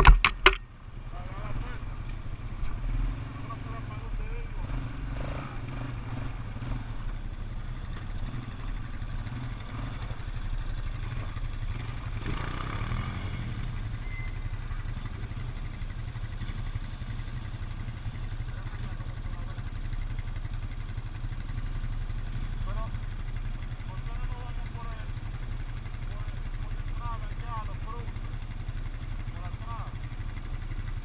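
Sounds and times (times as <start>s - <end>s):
clatter: 0.0s - 0.7s
quad bike engine rumbling: 0.0s - 31.0s.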